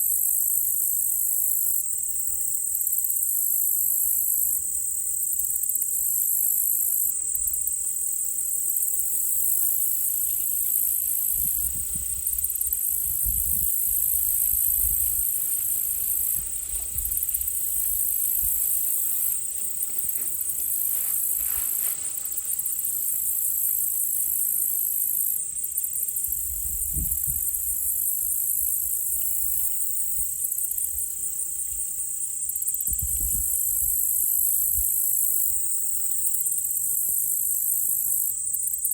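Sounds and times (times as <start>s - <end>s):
crickets and night insects: 0.0s - 38.9s.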